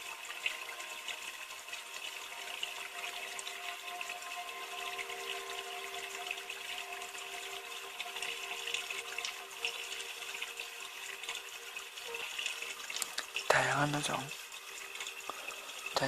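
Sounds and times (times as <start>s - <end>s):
aquarium water trickling: 0.0s - 16.0s
faint steady hum: 0.0s - 16.0s.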